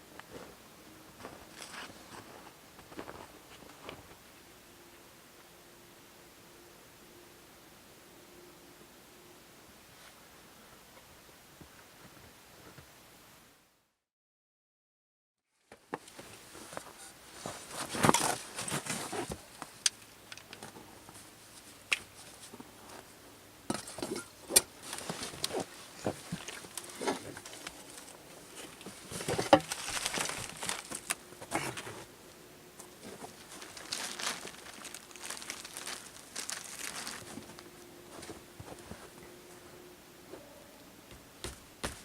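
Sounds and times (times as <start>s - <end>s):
rustling and crinkling: 0.2s - 4.2s, 15.5s - 32.1s, 32.8s - 39.3s.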